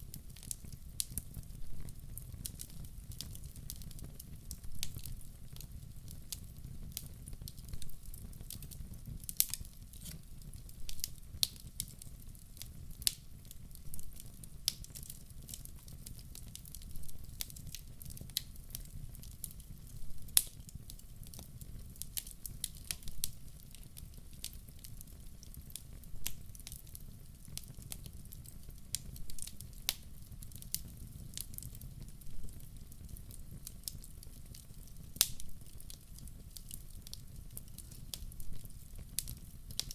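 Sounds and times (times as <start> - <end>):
low rumble of flames: 0.0 - 39.9
logs crackling and popping: 0.1 - 39.9.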